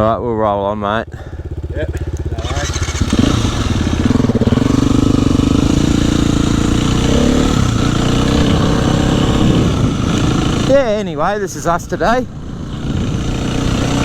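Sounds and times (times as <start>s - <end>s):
dirt bike engine revving: 1.2s - 14.0s.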